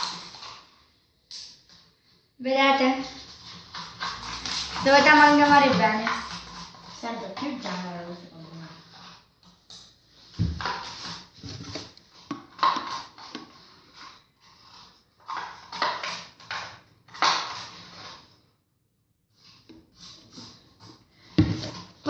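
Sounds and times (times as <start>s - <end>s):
utensil stirring sticky slime: 0.0s - 18.5s
wet squelching and scraping: 1.6s - 18.5s.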